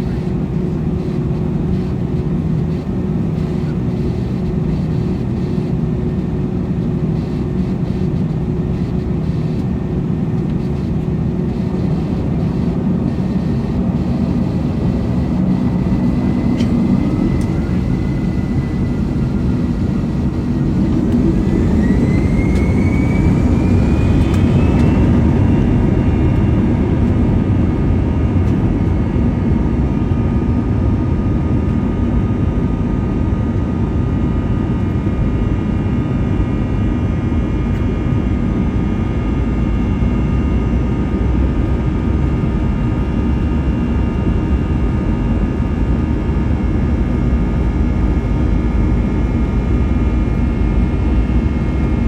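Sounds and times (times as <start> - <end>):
jet engines spooling up: 0.0 - 29.2.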